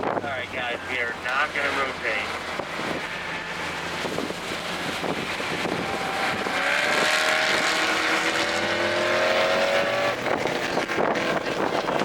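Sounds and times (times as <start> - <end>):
car engine accelerating: 0.1 - 12.0.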